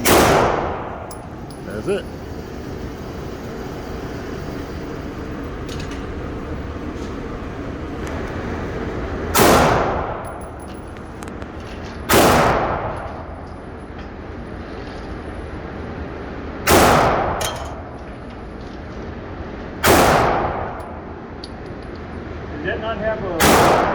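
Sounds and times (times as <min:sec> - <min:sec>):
pistol shots with echo: 0:00.0 - 0:01.0, 0:09.4 - 0:10.1, 0:12.1 - 0:13.0, 0:16.7 - 0:17.5, 0:19.8 - 0:20.7, 0:23.4 - 0:23.9.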